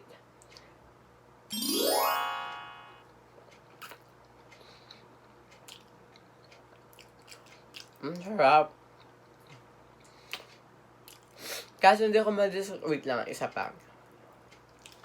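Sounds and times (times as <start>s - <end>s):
quick rising tones effect: 1.5s - 3.0s
person chewing food: 3.4s - 8.2s, 8.9s - 11.4s, 14.4s - 15.0s.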